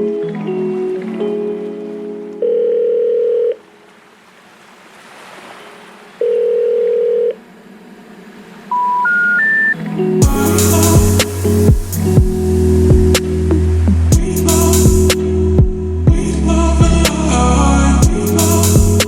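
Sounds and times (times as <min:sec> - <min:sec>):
background music: 0:00.0 - 0:02.9, 0:08.8 - 0:19.0
telephone ringing tone: 0:02.4 - 0:03.6, 0:06.2 - 0:07.4, 0:08.7 - 0:09.8
rising three-note beeps: 0:08.7 - 0:09.8.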